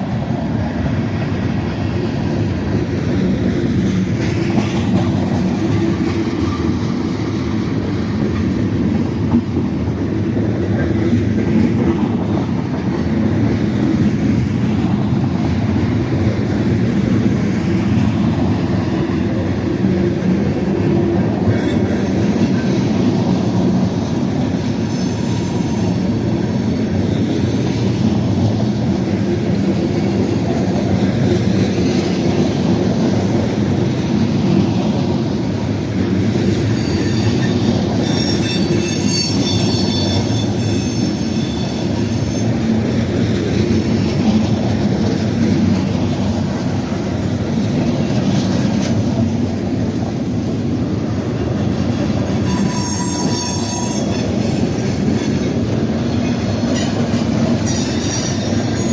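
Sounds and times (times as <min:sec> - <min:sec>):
freight train rumbling past: 0:00.0 - 0:58.9
high-pitched wheel squeal: 0:24.8 - 0:26.1, 0:36.5 - 0:42.7, 0:52.3 - 0:55.6, 0:56.7 - 0:58.9.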